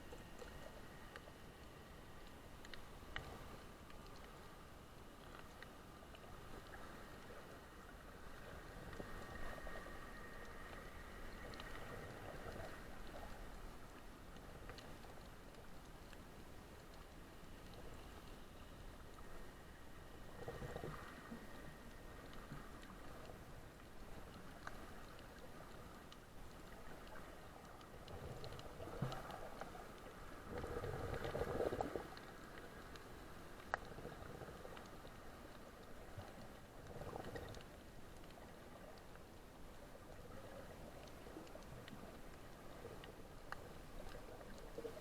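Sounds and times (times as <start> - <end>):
faint muffled water noise: 0.0 - 45.0
small clicks: 0.3 - 4.4.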